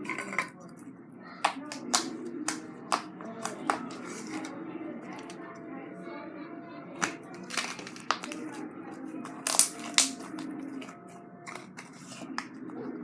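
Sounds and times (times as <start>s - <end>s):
faint steady background sound: 0.0s - 13.0s
slime squished by hand: 1.4s - 4.5s, 7.0s - 8.6s, 9.2s - 12.5s
sharp pops and clicks: 1.5s - 4.5s, 9.3s - 10.5s.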